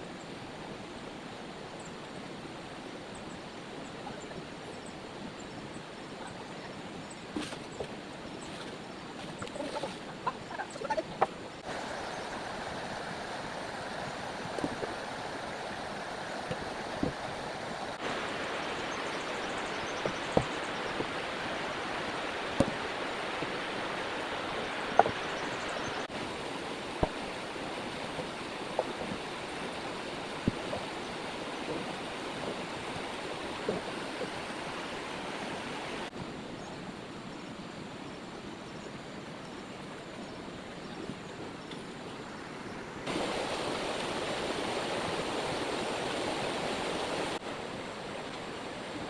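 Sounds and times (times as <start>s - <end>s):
heavy rain falling: 11.6s - 36.1s.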